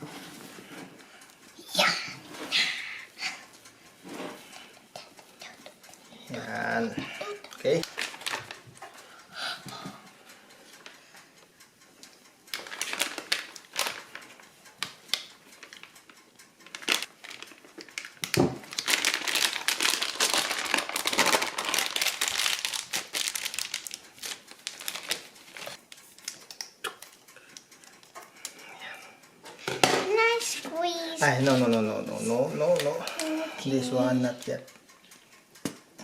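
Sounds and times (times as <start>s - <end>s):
plastic sheet crinkling: 7.6s - 8.9s, 12.5s - 15.9s, 16.6s - 27.1s.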